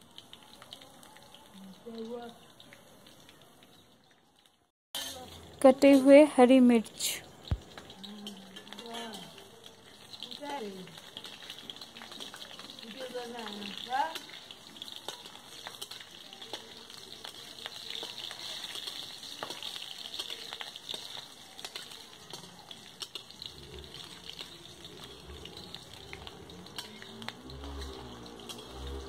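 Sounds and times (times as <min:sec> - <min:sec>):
garlic sizzling in hot oil: 0:00.0 - 0:29.0
metal spatula scraping a wok: 0:05.0 - 0:06.2, 0:18.0 - 0:29.0.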